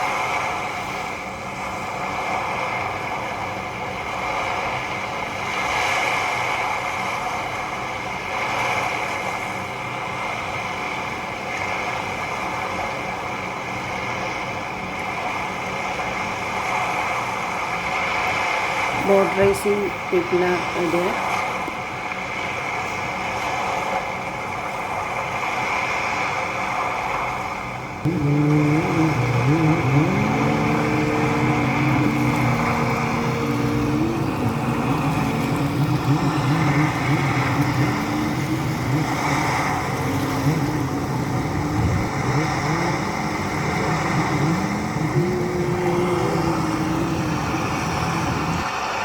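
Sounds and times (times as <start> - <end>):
motorboat engine revving: 0.0 - 25.9, 26.7 - 48.7
steady noise: 28.1 - 48.7.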